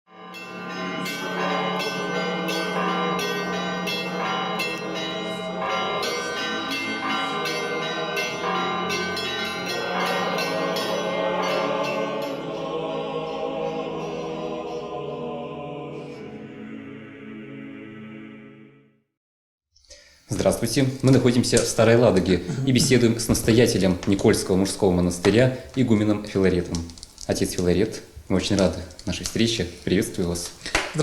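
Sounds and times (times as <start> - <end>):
church bells ringing: 0.1 - 15.0.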